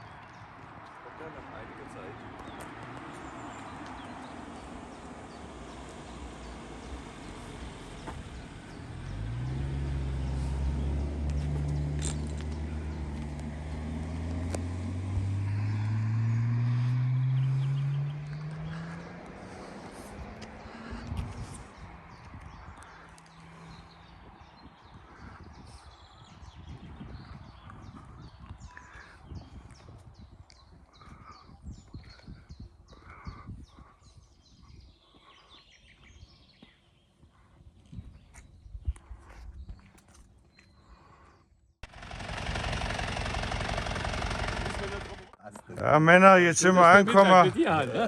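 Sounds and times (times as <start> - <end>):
birds chirping: 0.0 - 48.0
car engine accelerating: 2.4 - 22.2, 41.8 - 48.0.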